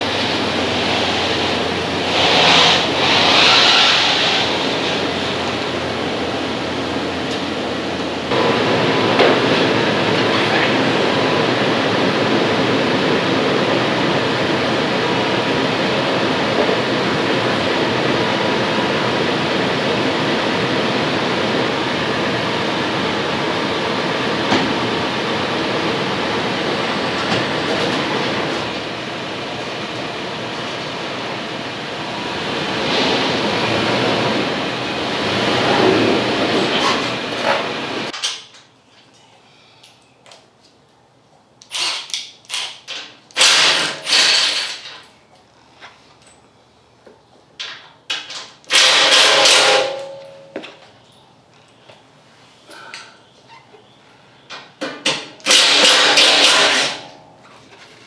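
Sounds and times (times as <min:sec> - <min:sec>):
vehicle road noise: 0:00.0 - 0:38.1.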